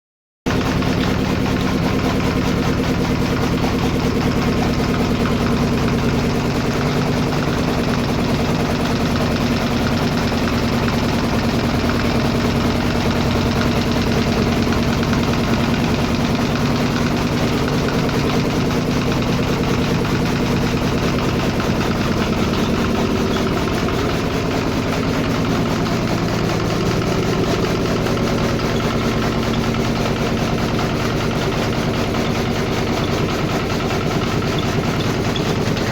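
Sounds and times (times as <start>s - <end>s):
engine idling: 0.5s - 35.9s.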